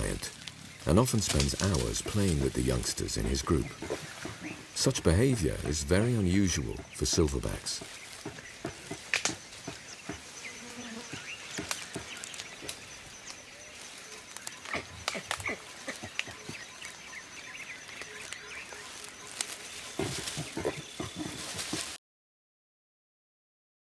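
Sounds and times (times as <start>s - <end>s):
twigs snapping and rustling: 0.0s - 4.3s, 7.4s - 10.1s, 11.2s - 16.9s, 17.8s - 22.0s
insects buzzing: 0.0s - 22.0s.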